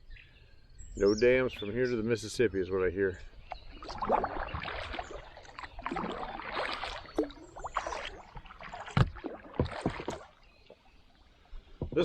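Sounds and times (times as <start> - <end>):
paddle splashing water: 3.2 - 12.0
sharp knocks: 11.8 - 12.0.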